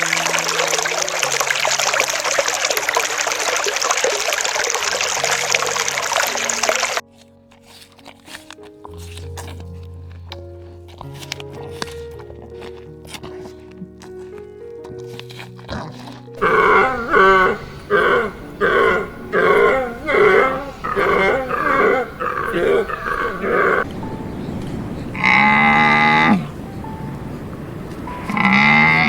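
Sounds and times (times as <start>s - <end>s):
background music: 0.0s - 29.0s
animal calling: 14.8s - 29.0s.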